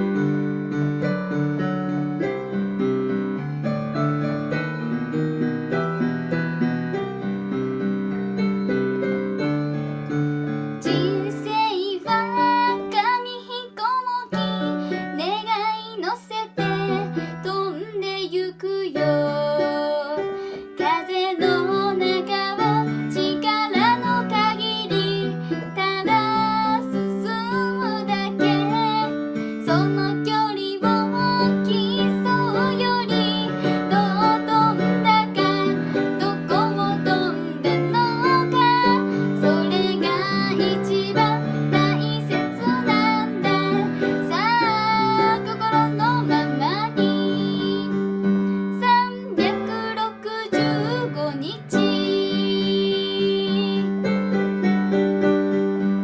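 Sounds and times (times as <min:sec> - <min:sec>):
piano chords and melody: 0:00.0 - 0:56.0
woman singing with vibrato: 0:10.9 - 0:47.9, 0:48.8 - 0:53.9.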